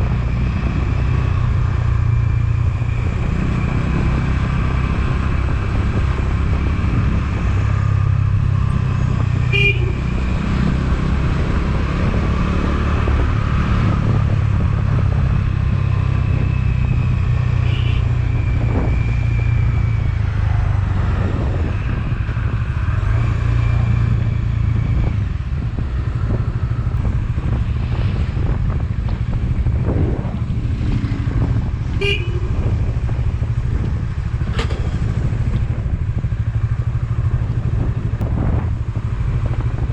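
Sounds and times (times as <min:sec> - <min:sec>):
wind and road noise: 0:00.0 - 0:39.9
vehicle horn toots: 0:09.5 - 0:10.1, 0:17.6 - 0:18.2, 0:32.0 - 0:32.7
motorcycle engine running: 0:23.8 - 0:39.9.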